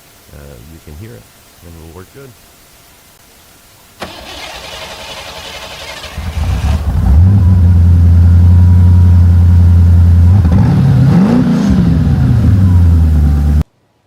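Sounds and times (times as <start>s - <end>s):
car engine starting and idling: 4.0s - 13.6s.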